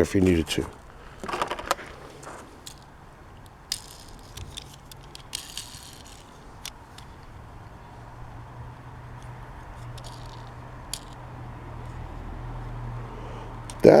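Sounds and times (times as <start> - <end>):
toy car clicks and rattles: 0.0 - 14.0
plastic blister pack crinkling: 0.4 - 8.3, 13.5 - 14.0.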